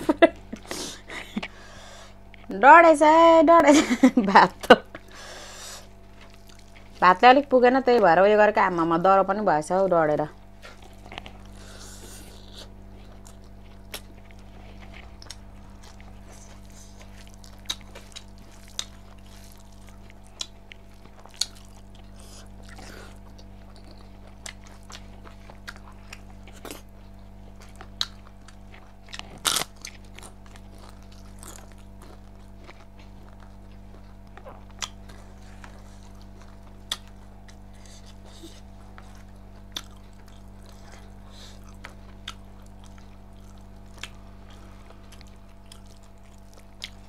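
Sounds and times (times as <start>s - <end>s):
steady low hum: 0.0s - 47.0s
person chewing: 4.8s - 7.0s, 10.5s - 47.0s.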